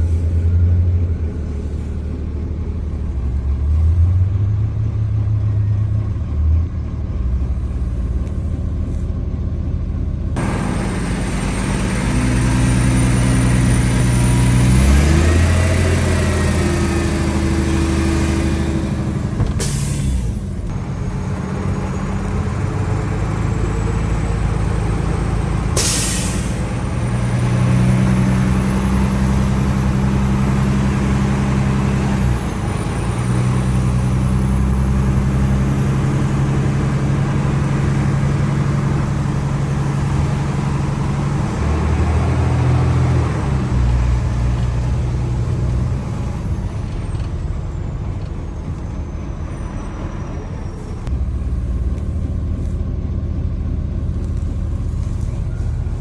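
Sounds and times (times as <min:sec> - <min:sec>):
truck engine running: 0:00.0 - 0:56.0
air hiss burst: 0:19.5 - 0:20.4, 0:25.8 - 0:26.6.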